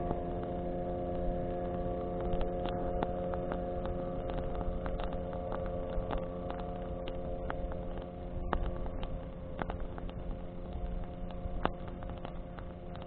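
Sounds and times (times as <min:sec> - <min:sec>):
bonfire crackling and popping: 0:00.0 - 0:13.0
steady engine-like hum: 0:00.0 - 0:13.0
wind-blown flame rumble: 0:00.0 - 0:13.0.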